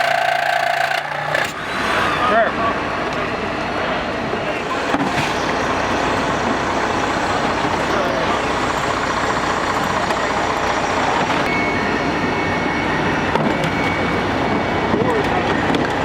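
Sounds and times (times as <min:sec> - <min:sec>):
indistinct voices: 0:00.0 - 0:11.7
heavy vehicle engine running: 0:00.0 - 0:16.0.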